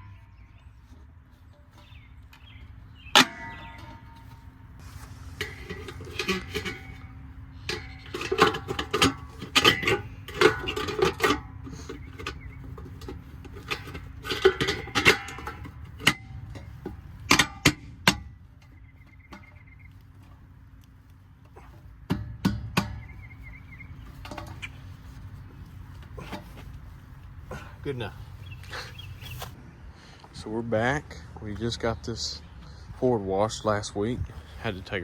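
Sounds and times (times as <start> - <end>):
hubcap clinking onto wheel: 1.6 - 19.8.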